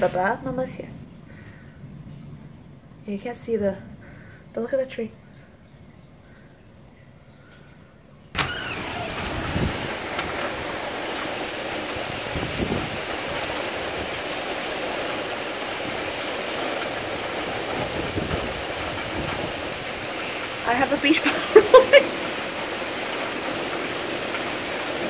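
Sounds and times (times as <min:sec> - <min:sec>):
heavy rain hissing on pavement: 0:00.0 - 0:02.4, 0:08.3 - 0:25.0.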